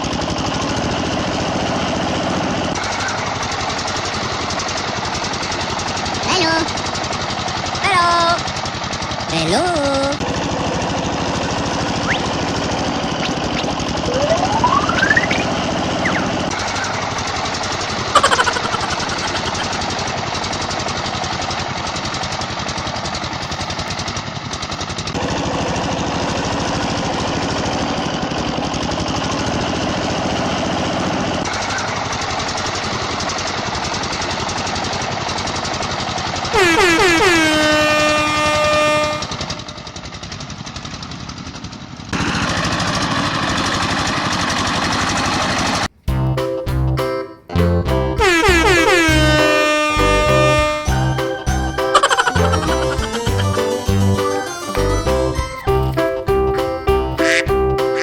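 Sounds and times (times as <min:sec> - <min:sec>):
loud horn-like blast: 0:36.6 - 0:39.3, 0:48.2 - 0:51.1.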